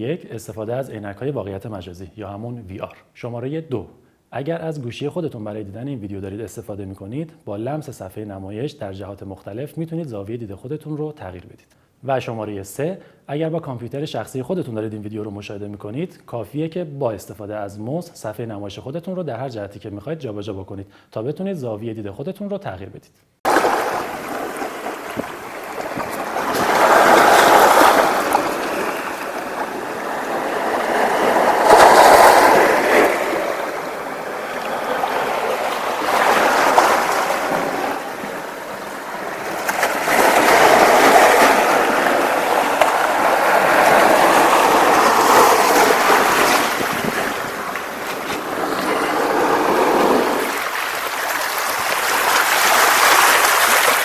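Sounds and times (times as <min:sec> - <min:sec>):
sea waves breaking on shore: 0:23.5 - 0:54.0.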